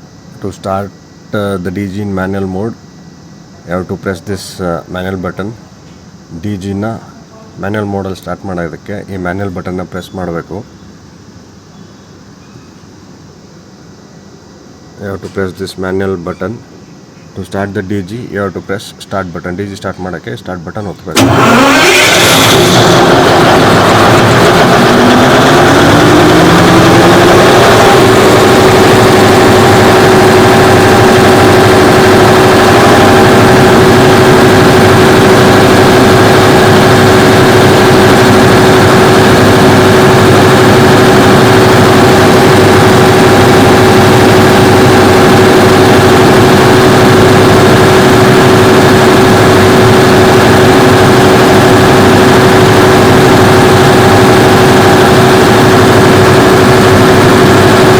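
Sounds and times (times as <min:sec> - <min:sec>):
diesel generator engine running: 0:20.8 - 0:57.9.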